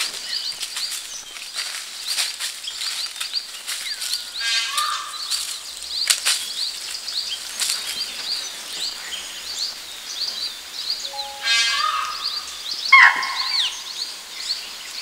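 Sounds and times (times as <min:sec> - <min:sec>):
birds chirping: 0:00.0 - 0:15.0
harsh low bird call: 0:11.1 - 0:13.8.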